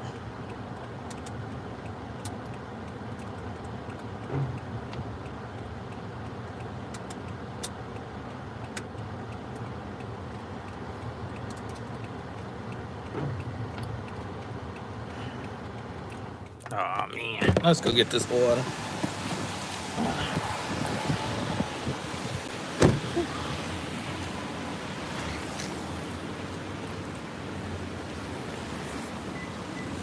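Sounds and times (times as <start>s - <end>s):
car engine and road noise: 0.0s - 30.0s
light ticks: 0.1s - 16.8s.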